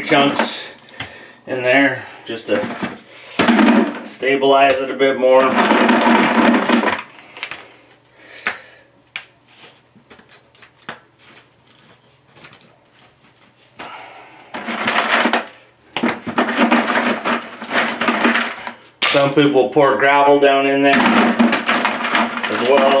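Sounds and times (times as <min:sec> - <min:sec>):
rough scraping and clatter: 0:00.0 - 0:00.8, 0:02.4 - 0:04.3, 0:05.1 - 0:07.1, 0:14.6 - 0:18.8, 0:20.8 - 0:23.0
concrete chunks knocking: 0:00.0 - 0:01.2, 0:02.5 - 0:07.1, 0:14.6 - 0:19.2, 0:20.8 - 0:23.0.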